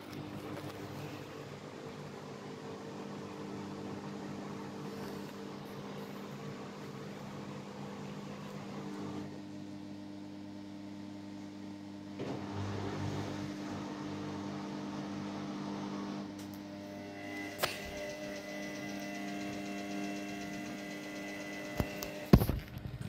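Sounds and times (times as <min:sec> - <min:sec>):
washing machine motor hum: 0:00.0 - 0:23.0
sharp click: 0:17.6 - 0:18.2.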